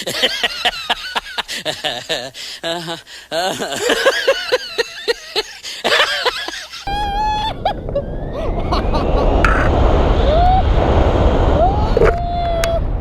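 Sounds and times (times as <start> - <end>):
person laughing: 0.0 - 9.5
steady tone: 6.9 - 13.0
wind buffeting microphone: 6.9 - 13.0.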